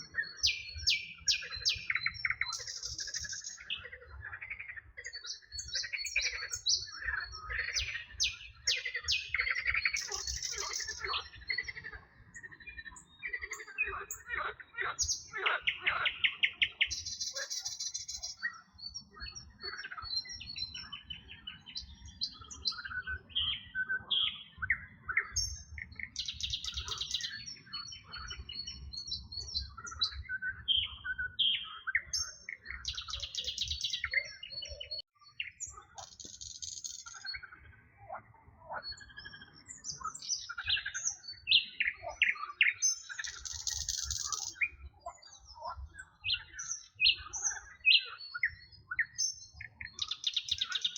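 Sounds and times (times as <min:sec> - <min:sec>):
songbirds chirping and whistling: 0:00.0 - 0:50.9.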